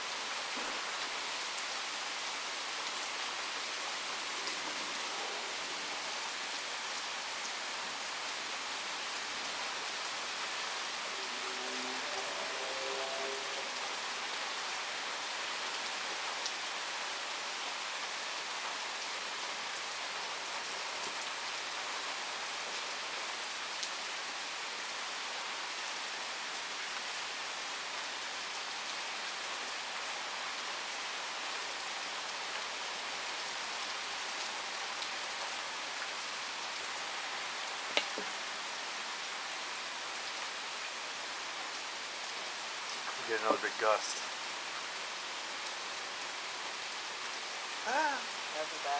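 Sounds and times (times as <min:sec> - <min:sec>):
steady rain: 0:00.0 - 0:48.9
raindrop ticks: 0:37.9 - 0:38.3.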